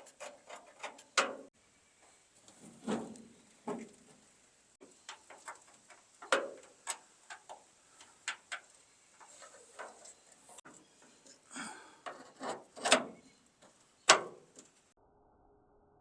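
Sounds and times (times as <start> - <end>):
light clicks and knocks: 4.8 - 14.8.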